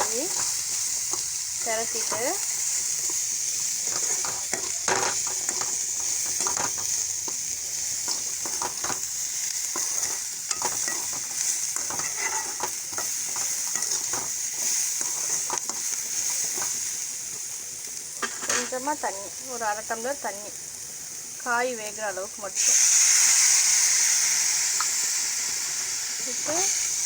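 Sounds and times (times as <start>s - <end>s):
spoon scraping and knocking pan: 0.0s - 3.2s, 3.8s - 9.1s, 9.7s - 16.8s
vegetables sizzling in a pan: 0.0s - 27.0s.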